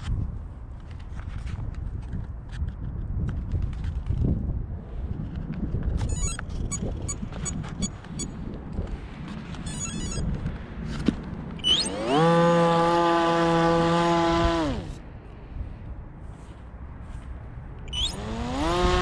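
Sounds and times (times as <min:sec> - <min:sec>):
wind rumble: 0:00.0 - 0:19.0
electric motor whining: 0:11.6 - 0:15.0, 0:17.9 - 0:19.0.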